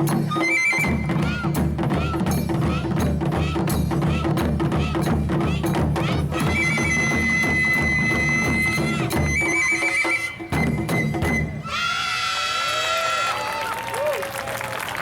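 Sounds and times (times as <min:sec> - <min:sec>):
taiko drums beating: 0:00.0 - 0:11.6
flute trilling melody: 0:00.0 - 0:12.1.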